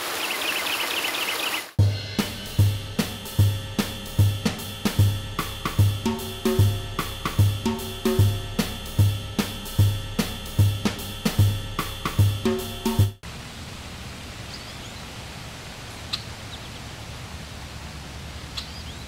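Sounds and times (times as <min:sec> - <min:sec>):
hi-hat and cymbal strokes: 0:01.8 - 0:13.2
kick drum beat: 0:01.8 - 0:13.2.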